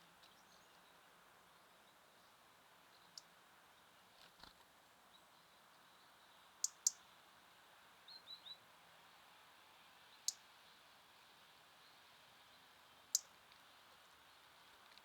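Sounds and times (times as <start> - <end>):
songbird chirps: 0.0 - 7.2, 10.0 - 10.6, 11.8 - 15.0
songbird clicks: 6.6 - 7.0.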